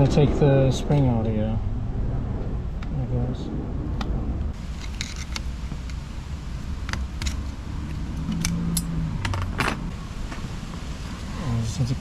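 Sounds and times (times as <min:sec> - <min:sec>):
low steady hum: 0:00.0 - 0:12.0
small metal parts clinking: 0:04.7 - 0:06.0, 0:06.8 - 0:09.9.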